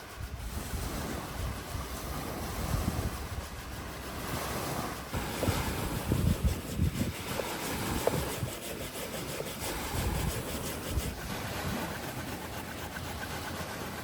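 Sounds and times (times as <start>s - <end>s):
waves washing on shore: 0.0s - 14.0s
wind on microphone: 0.0s - 14.0s.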